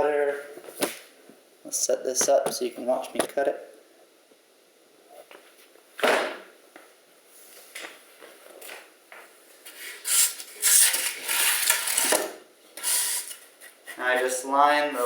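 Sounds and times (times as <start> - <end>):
loud scraping and rubbing: 9.8 - 12.2, 12.8 - 14.3.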